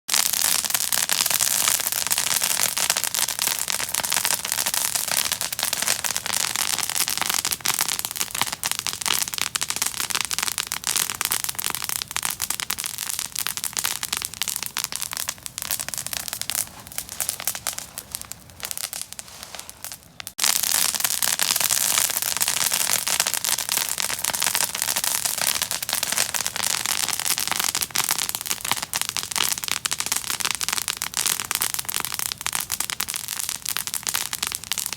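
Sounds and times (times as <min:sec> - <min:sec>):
open fire crackling: 0:00.1 - 0:34.9.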